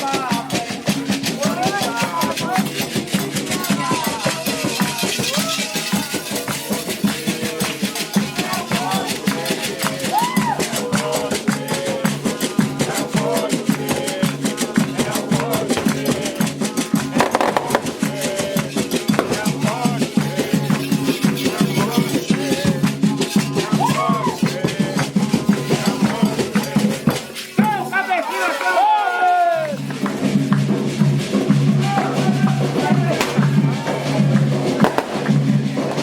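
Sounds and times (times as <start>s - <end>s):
shaken rattle: 0.0s - 28.0s
hand drums beating: 0.0s - 28.1s, 29.6s - 36.0s
voices chanting: 0.0s - 30.4s, 31.3s - 36.0s.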